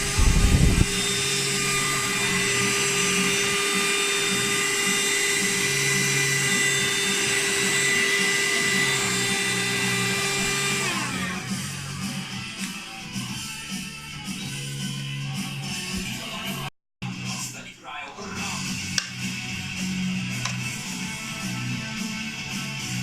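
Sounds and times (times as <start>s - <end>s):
loud low rumble: 0.0s - 1.2s
handheld vacuum cleaner whine: 0.0s - 13.0s.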